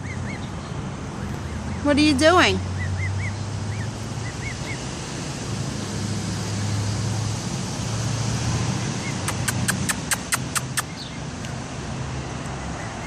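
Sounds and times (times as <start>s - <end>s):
traffic: 0.0s - 13.0s
wind: 0.0s - 13.0s
gosling peeps: 9.0s - 11.0s
sharp clicks: 9.2s - 11.6s.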